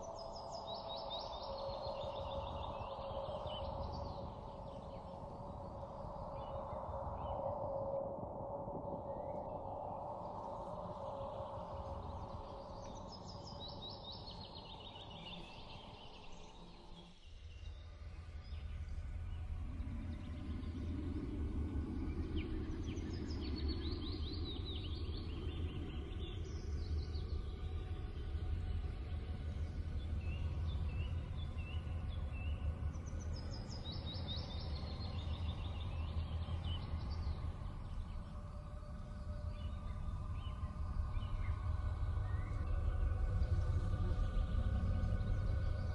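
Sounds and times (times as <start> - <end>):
low ambient rumble: 17.7 - 45.9.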